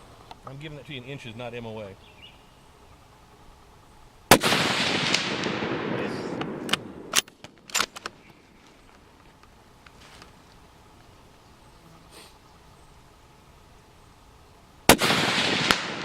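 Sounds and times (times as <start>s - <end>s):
rifle shot with rolling echo: 4.3s - 8.3s, 14.9s - 16.0s
rifle bolt clicks: 6.4s - 8.2s.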